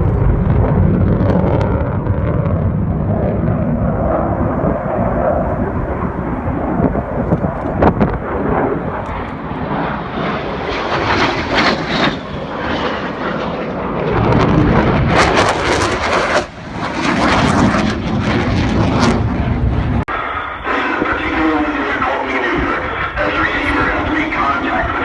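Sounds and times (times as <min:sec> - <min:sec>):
aircraft engines roaring: 0:00.0 - 0:25.0.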